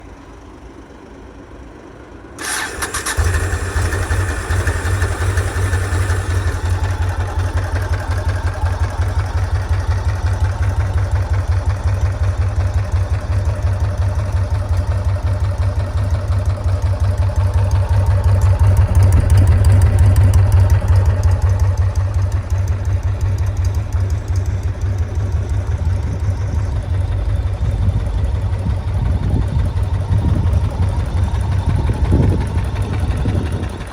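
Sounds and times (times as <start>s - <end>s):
motorcycle engine starting and idling: 0.0s - 33.9s.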